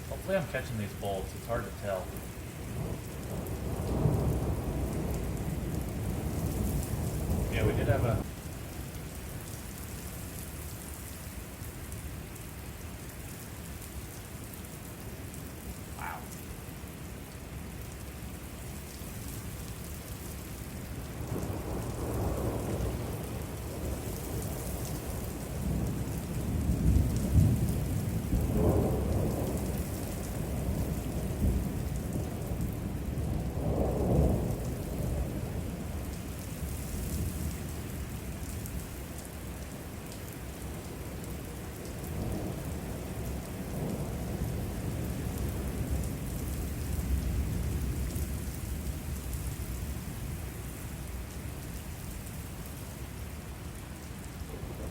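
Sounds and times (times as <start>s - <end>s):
thunder rumbling: 0.0s - 8.3s, 21.2s - 36.1s, 54.4s - 54.9s
steady rain: 0.0s - 54.9s.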